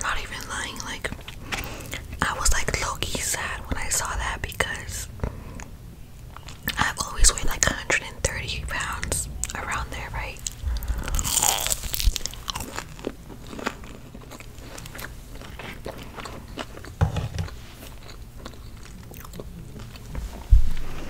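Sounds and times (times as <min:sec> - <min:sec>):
crunchy food chewing: 0:10.4 - 0:20.2.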